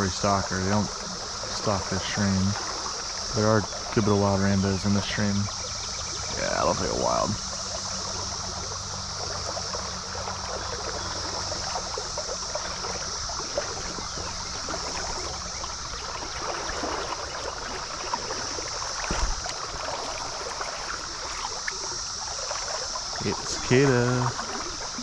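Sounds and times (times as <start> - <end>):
cicadas droning: 0.0 - 25.0
stream water trickling: 0.0 - 25.0
low thump: 19.0 - 19.5.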